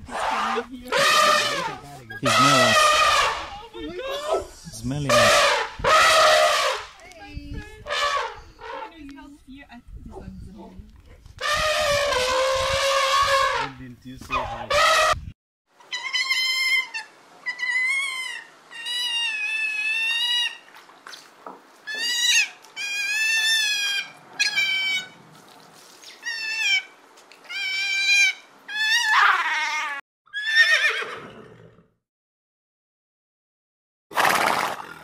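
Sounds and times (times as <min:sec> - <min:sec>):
sea otter squealing: 0:00.1 - 0:03.6, 0:15.8 - 0:20.7, 0:21.8 - 0:25.2, 0:26.0 - 0:31.0.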